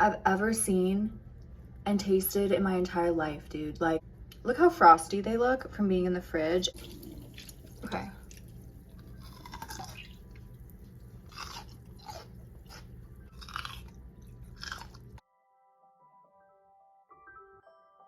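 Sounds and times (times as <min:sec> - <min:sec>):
crunching and chewing grapes: 0:06.8 - 0:15.2
soft keyboard music: 0:09.0 - 0:18.0.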